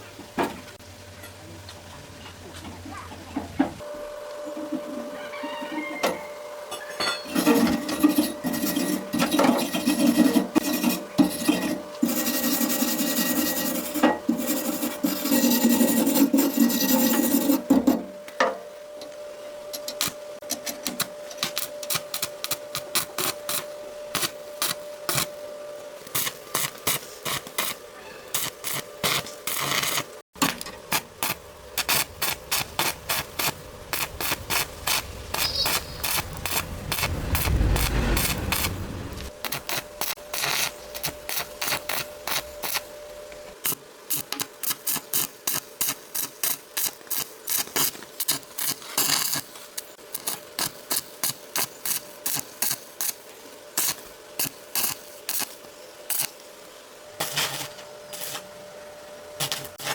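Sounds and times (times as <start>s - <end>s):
file scraping hard surface: 7.3s - 18.0s
faint hum: 30.4s - 43.6s.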